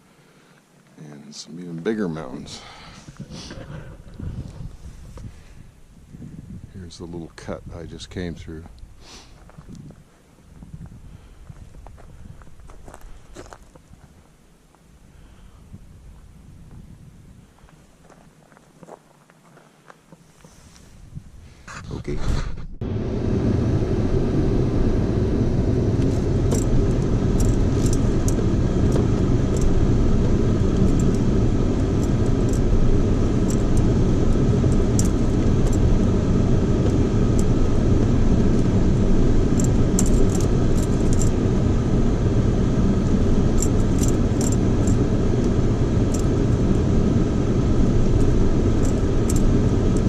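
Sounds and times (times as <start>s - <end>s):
vehicle driving on rocky road: 6.8s - 14.9s, 22.8s - 50.0s
clicks and rattles: 26.5s - 29.8s, 34.7s - 35.9s, 39.6s - 41.4s, 43.6s - 45.0s, 48.2s - 50.0s.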